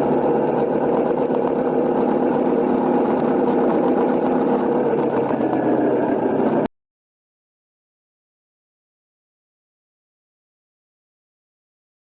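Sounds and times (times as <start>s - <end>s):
motorcycle engine running steadily: 0.0s - 6.7s.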